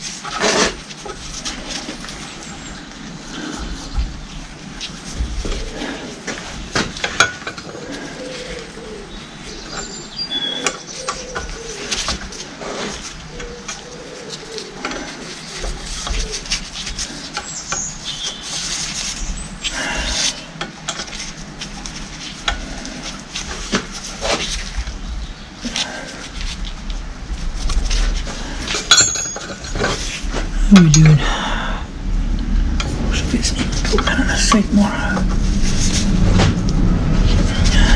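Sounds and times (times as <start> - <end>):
hand tools and metal parts clinking: 7.0 - 8.7, 28.6 - 31.2.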